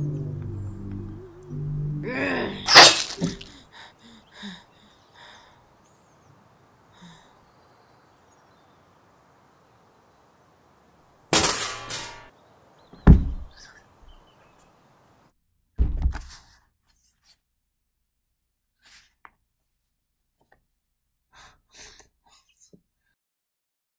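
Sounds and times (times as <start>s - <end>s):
axe chops and impacts: 2.7s - 3.5s
dull thud: 13.0s - 13.5s, 15.8s - 16.3s.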